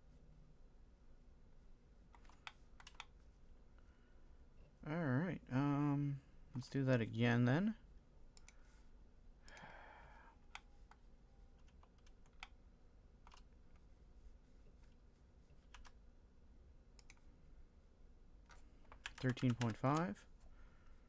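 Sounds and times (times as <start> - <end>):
keyboard and mouse clicks: 2.1 - 3.1, 11.6 - 12.6, 13.2 - 13.9, 15.6 - 16.0, 17.0 - 17.3, 18.5 - 20.2.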